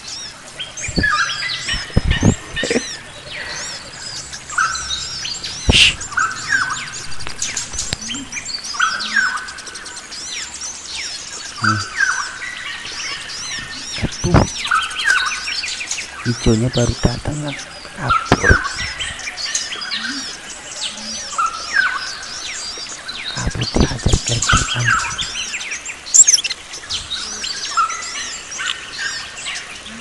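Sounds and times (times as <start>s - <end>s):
forest birds singing and calling: 0.0s - 30.0s
lower bird call phrase: 5.6s - 7.2s, 11.6s - 12.2s.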